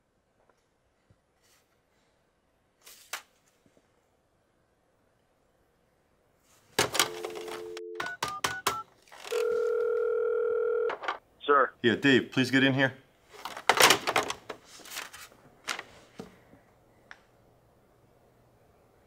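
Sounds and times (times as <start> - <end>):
dial tone: 7.0 - 8.2, 9.3 - 11.0
keypad beeps: 7.0 - 9.6.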